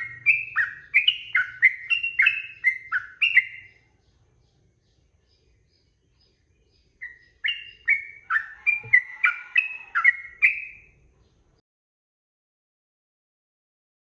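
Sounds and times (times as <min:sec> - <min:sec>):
bulbul whistled song: 0:00.0 - 0:03.9, 0:07.0 - 0:11.0.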